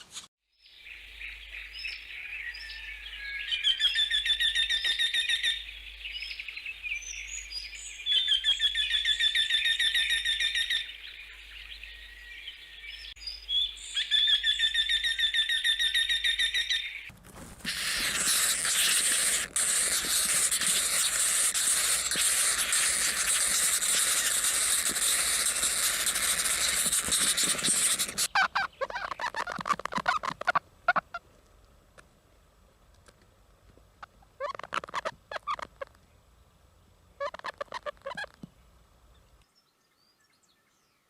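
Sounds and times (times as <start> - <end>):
loud high hiss: 17.6 - 28.3
bird trills: 17.7 - 31.2.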